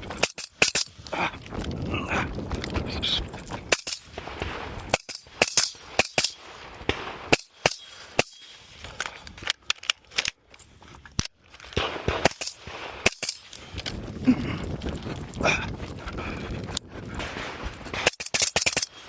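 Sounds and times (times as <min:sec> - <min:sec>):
rifle shots: 0:03.7 - 0:08.6, 0:11.7 - 0:13.5, 0:17.1 - 0:19.0.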